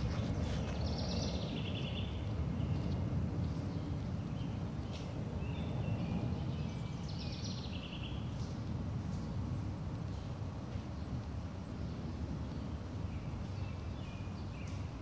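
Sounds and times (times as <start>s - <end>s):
bird singing: 0.0s - 8.4s
low outdoor rumble: 0.0s - 15.0s.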